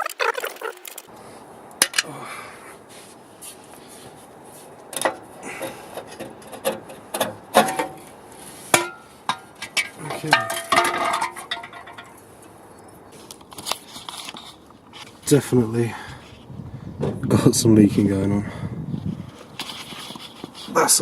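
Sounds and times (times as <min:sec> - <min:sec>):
metal knocking and clattering: 0:04.9 - 0:08.1, 0:08.7 - 0:12.2.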